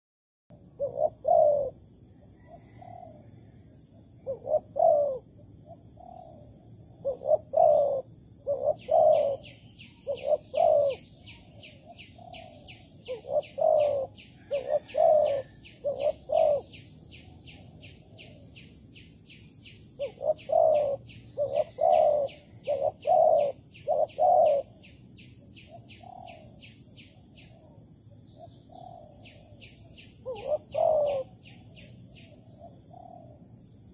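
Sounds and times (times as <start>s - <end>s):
dove cooing: 0.6s - 18.6s, 20.0s - 33.5s.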